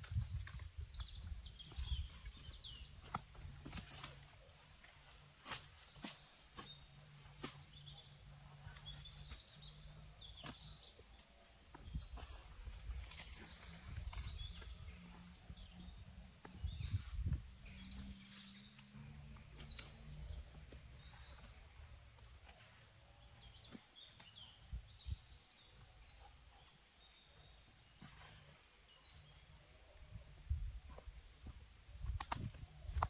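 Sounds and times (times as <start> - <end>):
small clicks and crackles: 2.2 - 7.8, 32.0 - 33.0.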